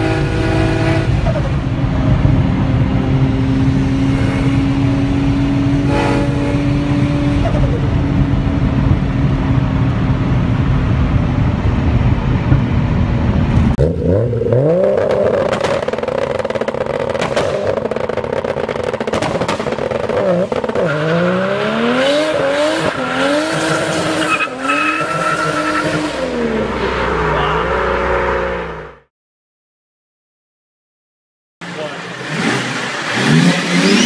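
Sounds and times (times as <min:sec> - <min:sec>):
car engine revving: 0:00.0 - 0:29.1, 0:31.6 - 0:34.0
exhaust pops and crackles: 0:15.0 - 0:20.9.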